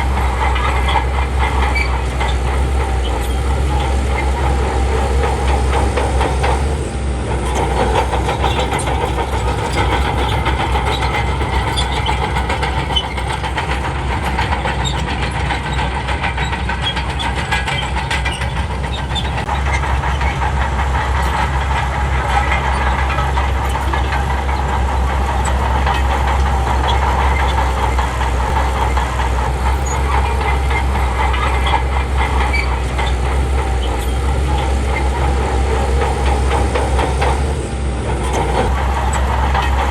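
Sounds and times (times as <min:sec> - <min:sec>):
bulldozer diesel engine rumbling: 0:00.0 - 0:39.9
dense rapid clatter: 0:00.0 - 0:39.9.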